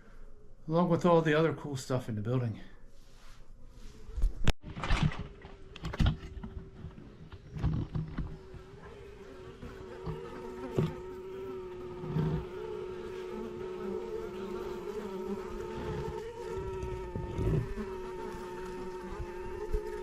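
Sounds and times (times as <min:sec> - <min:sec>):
honeybees buzzing: 0:06.4 - 0:20.0.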